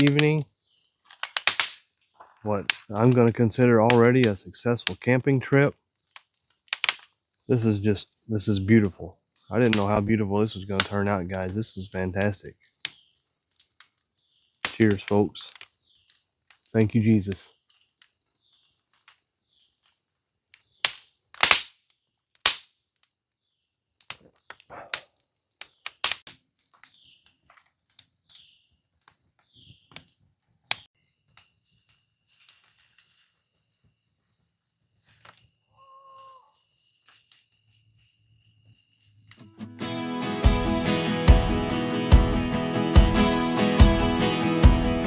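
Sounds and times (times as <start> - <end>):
sharp clicks and snaps: 0.0 - 0.4, 1.1 - 1.8, 6.1 - 7.1, 24.0 - 26.4
crickets chirring: 0.0 - 40.2.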